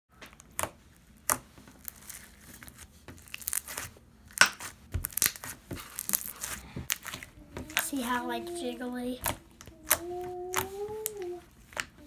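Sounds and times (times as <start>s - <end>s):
slime squeezed by hand crackling: 0.4s - 12.0s.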